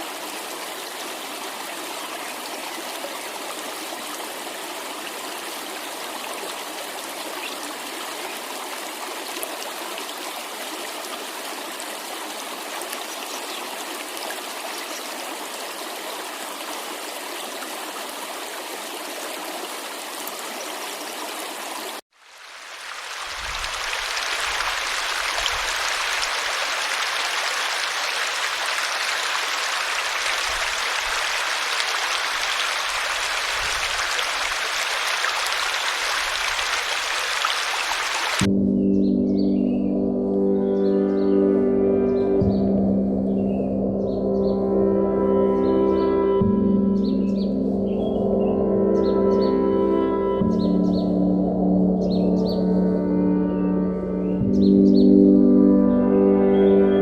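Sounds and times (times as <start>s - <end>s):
waterfall rushing: 0.0s - 38.5s.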